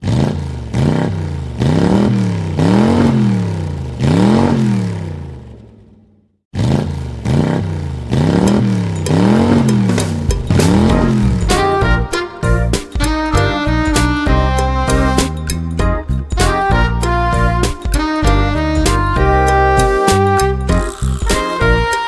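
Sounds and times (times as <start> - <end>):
engine revving up and down: 0.0 - 11.9.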